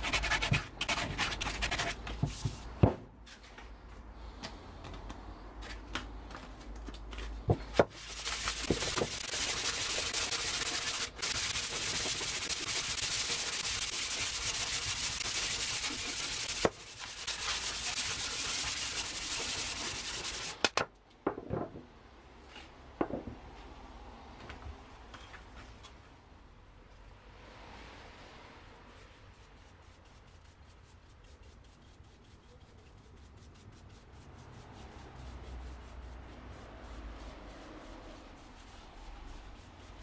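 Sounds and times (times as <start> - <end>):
sandpaper scrubbing wood: 7.9 - 20.7, 28.9 - 40.0.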